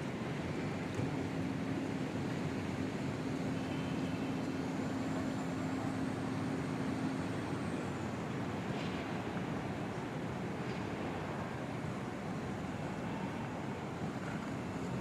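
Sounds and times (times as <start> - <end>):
low engine hum: 0.0 - 15.0
rumble of passing vehicles: 0.0 - 15.0.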